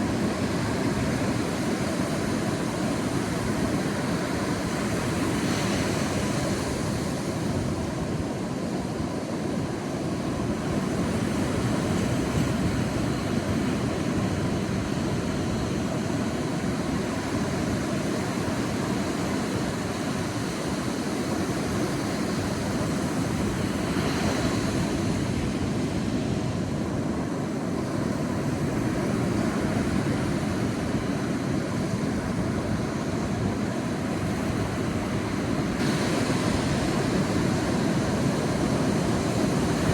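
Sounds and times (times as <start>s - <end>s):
surf rumbling: 10.2s - 39.9s
hiss of wave wash: 34.7s - 39.9s.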